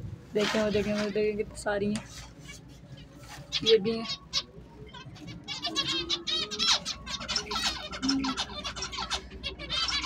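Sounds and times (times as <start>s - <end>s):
small birds chirping: 0.3s - 10.0s.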